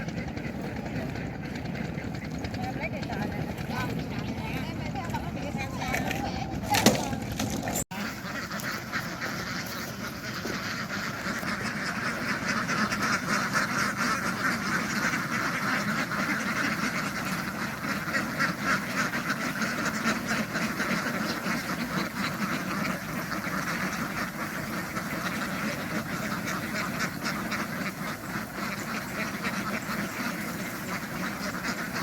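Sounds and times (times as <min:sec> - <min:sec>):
flock of ducks quacking: 0:00.0 - 0:32.0.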